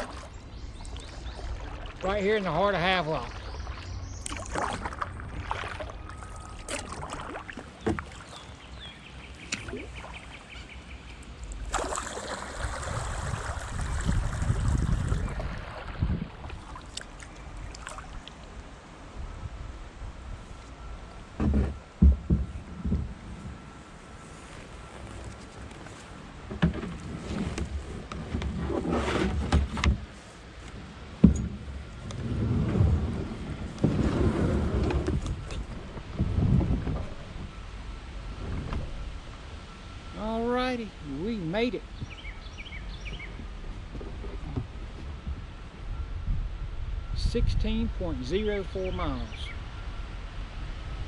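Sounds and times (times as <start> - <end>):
paddle strokes in water: 0.0 - 2.5, 3.1 - 18.5, 21.4 - 37.6
water and wind rushing: 0.0 - 51.0.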